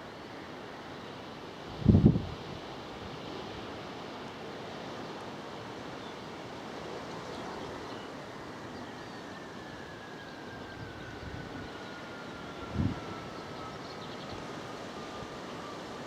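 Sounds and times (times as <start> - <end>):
faint whine falling in pitch: 7.4 - 16.0.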